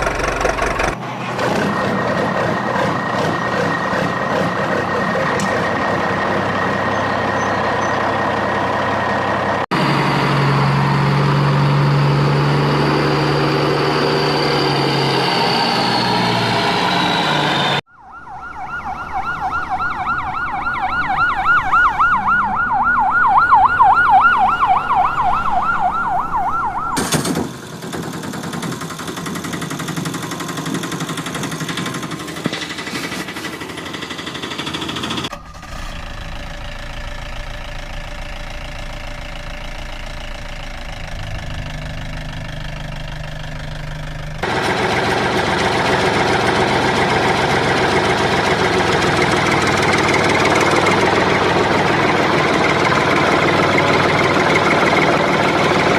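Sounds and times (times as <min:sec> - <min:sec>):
engines running: 0:00.0 - 0:55.9
fast warbling siren: 0:13.3 - 0:27.0.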